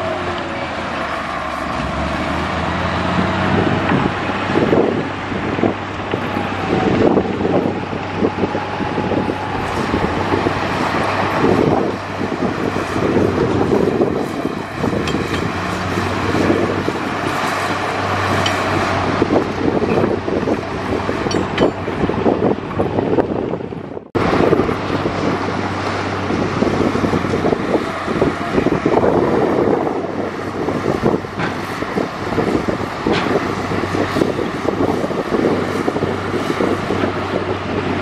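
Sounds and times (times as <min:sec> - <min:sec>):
bulldozer diesel engine running: 0:00.0 - 0:38.0
sharp metallic clanks: 0:21.2 - 0:21.9.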